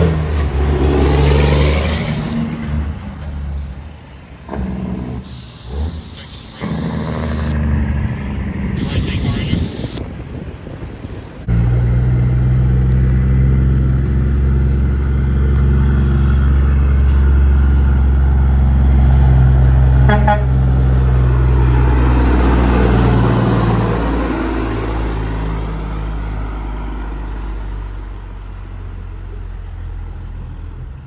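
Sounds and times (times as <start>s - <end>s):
truck diesel engine running: 0.0s - 31.0s.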